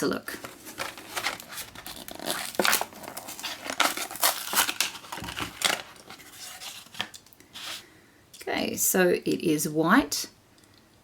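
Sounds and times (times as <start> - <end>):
plastic package crinkling open: 0.3 - 7.8.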